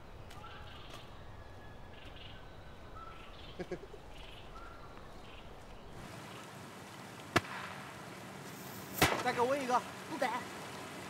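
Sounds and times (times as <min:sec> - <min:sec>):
bird chirps: 0:00.0 - 0:06.5
background hiss: 0:00.0 - 0:11.0.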